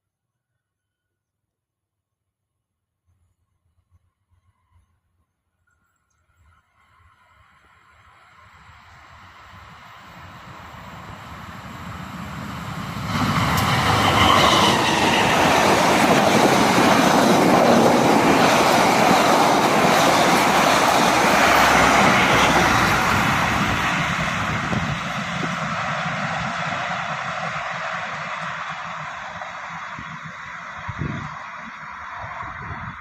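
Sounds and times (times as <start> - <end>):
passenger train passing: 7.8 - 33.0.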